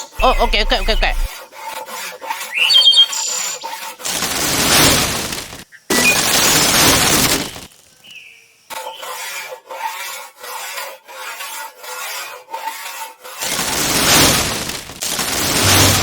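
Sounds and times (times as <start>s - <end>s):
saw cutting wood: 0.0s - 2.6s, 8.7s - 16.0s.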